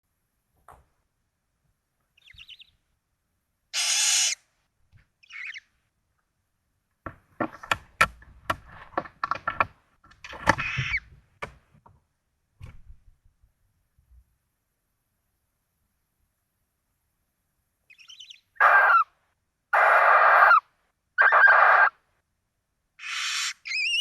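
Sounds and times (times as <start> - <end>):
owl chittering: 2.2 - 2.8, 3.7 - 4.4, 5.2 - 5.7, 10.6 - 11.0, 17.9 - 22.0, 23.0 - 24.0
owl rasping hiss call: 3.7 - 4.4, 5.2 - 5.6, 17.9 - 19.1, 19.7 - 22.0, 23.0 - 24.0.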